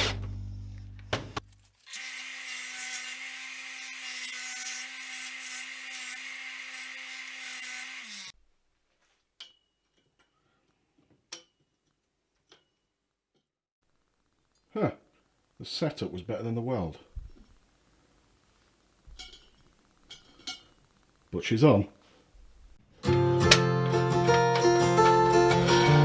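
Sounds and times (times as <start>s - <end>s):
power tool motor running: 1.8s - 8.3s.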